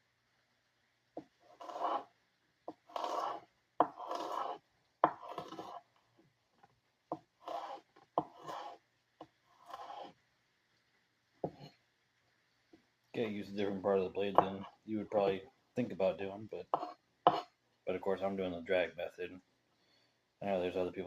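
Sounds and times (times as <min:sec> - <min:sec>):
knife slicing onion on board: 0:01.2 - 0:02.1, 0:02.7 - 0:05.8, 0:07.1 - 0:08.8, 0:09.6 - 0:10.2, 0:11.4 - 0:11.8, 0:16.7 - 0:17.5.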